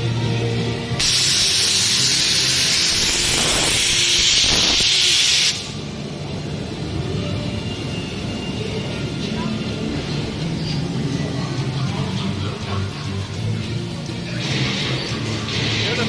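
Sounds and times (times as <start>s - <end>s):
hiss of escaping air: 1.0s - 5.9s.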